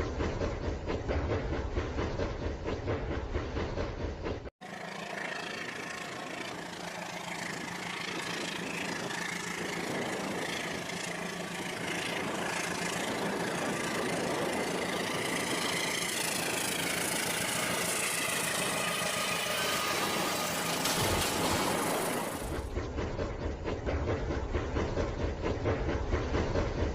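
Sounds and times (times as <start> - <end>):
toy train whirring and rattling: 4.6 - 22.8.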